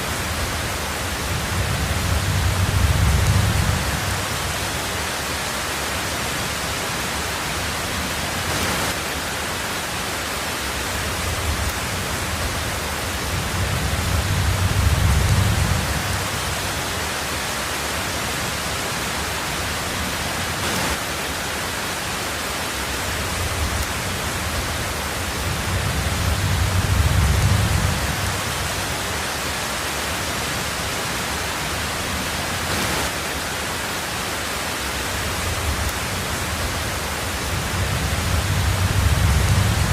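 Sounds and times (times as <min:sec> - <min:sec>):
heavy rain on a tin roof: 0:00.0 - 0:39.9
low rumbles of thunder: 0:00.2 - 0:04.6, 0:11.2 - 0:16.8, 0:23.2 - 0:28.9, 0:35.4 - 0:39.9.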